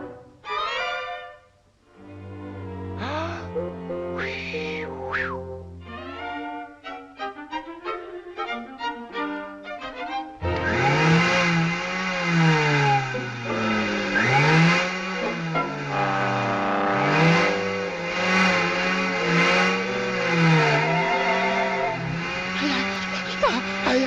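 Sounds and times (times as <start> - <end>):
engine revving: 10.4 - 24.0.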